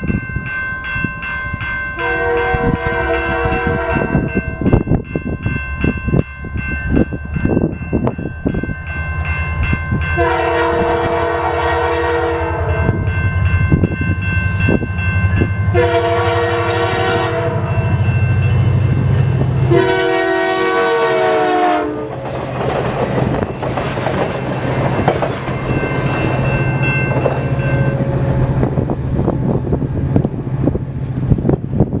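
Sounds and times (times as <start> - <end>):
train low rumble: 0.0 - 32.0
locomotive horn blasts: 2.0 - 4.6, 10.2 - 13.0, 15.7 - 17.9, 19.7 - 22.1
wheels clattering over rail joints: 22.1 - 27.9.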